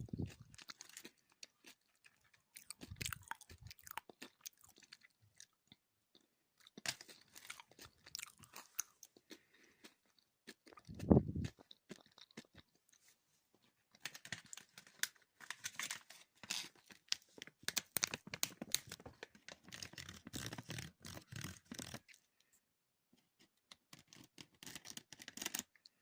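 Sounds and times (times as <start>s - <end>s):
wet mouth chewing sounds: 0.0s - 6.8s, 7.5s - 13.0s.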